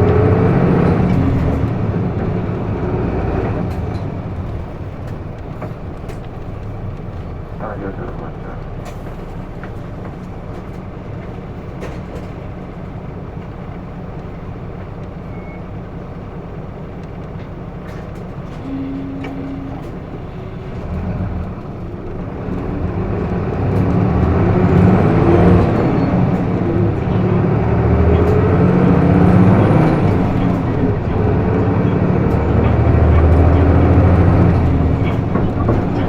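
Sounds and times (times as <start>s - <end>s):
bus diesel engine: 0.0s - 36.0s
brief single tone: 15.3s - 15.7s, 18.6s - 19.9s.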